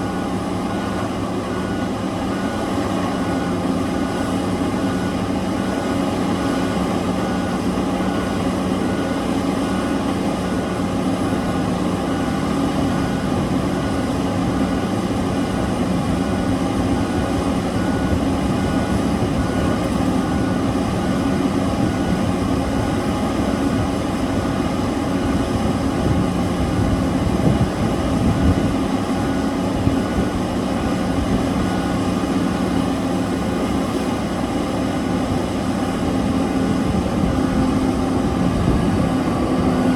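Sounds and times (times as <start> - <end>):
diesel engines under load: 0.0 - 39.9.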